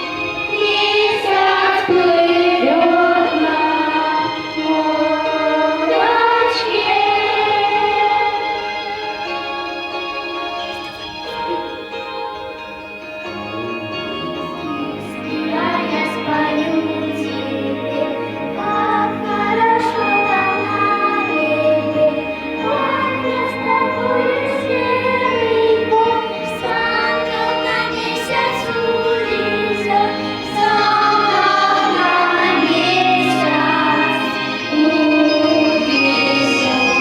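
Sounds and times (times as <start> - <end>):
children's choir singing: 0.0 - 37.0
instrumental backing track: 0.0 - 37.0.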